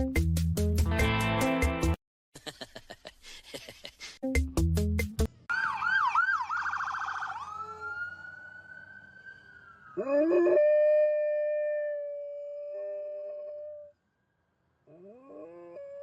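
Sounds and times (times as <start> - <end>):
siren yelping and wailing: 5.5 - 12.0
dog howling: 10.0 - 13.9, 15.0 - 16.0.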